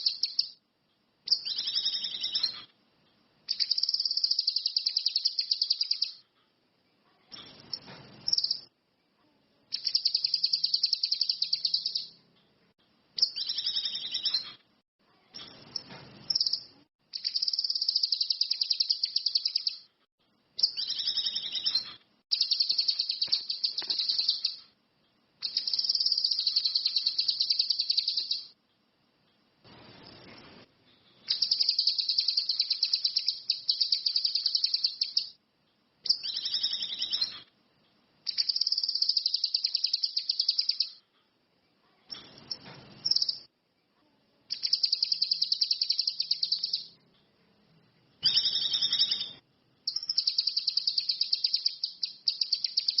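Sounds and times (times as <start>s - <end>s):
songbird chattering trills: 25.4s - 28.5s.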